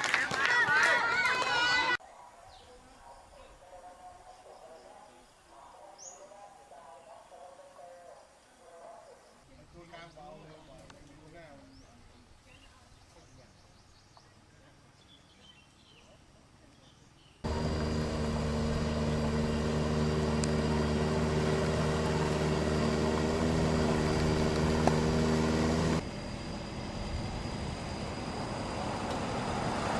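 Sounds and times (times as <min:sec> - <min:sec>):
quieter steady rumble: 0:17.4 - 0:29.9
vehicle engine running: 0:17.4 - 0:29.9.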